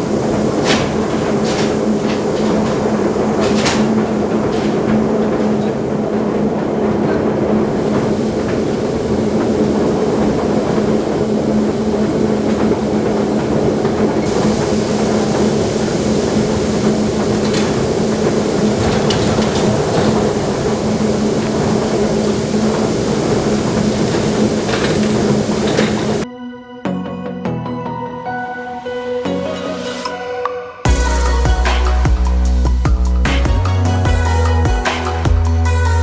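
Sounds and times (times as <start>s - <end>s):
diesel farm machinery running: 0.0s - 26.2s
sharp clanks: 0.0s - 26.2s.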